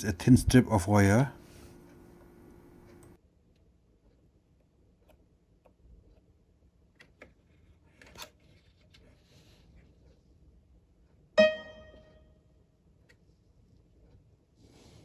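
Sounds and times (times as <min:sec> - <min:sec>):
loud ringing pitched note: 0:11.4 - 0:12.1.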